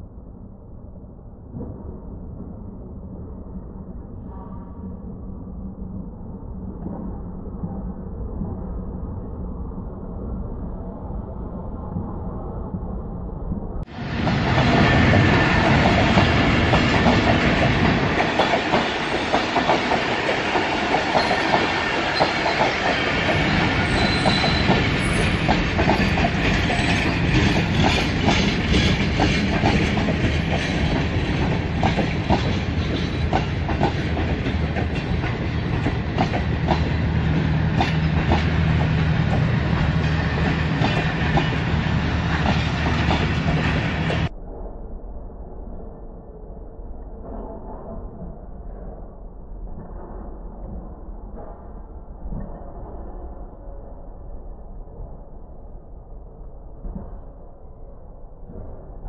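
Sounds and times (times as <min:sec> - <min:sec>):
train rumble: 0:01.4 - 0:44.3
train wheels clickety-clack: 0:13.9 - 0:44.3.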